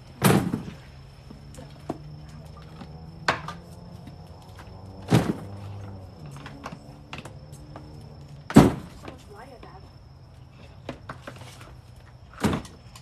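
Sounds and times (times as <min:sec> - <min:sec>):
heavy thuds of items set down: 0:00.2 - 0:00.8, 0:05.0 - 0:05.6, 0:08.5 - 0:09.2, 0:12.3 - 0:12.8.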